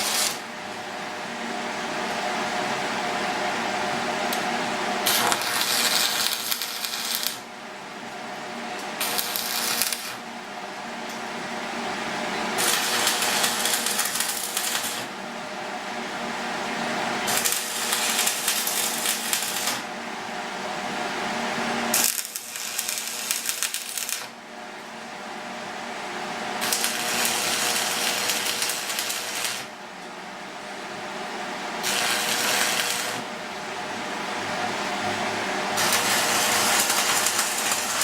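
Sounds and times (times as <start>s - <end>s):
welder crackling and sizzling: 0.0s - 0.8s, 4.3s - 7.5s, 8.8s - 10.2s, 12.5s - 15.2s, 17.2s - 19.9s, 21.9s - 24.4s, 26.6s - 29.8s, 31.8s - 33.3s, 35.7s - 38.0s
steady machine hum: 0.0s - 38.0s.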